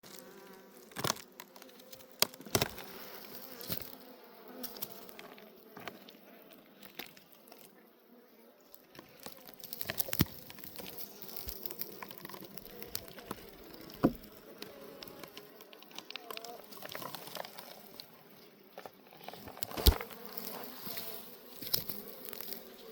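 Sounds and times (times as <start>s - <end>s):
sharp clicks and cracks: 0.9s - 2.9s, 9.2s - 18.1s, 19.3s - 20.5s
bees buzzing: 9.0s - 22.9s.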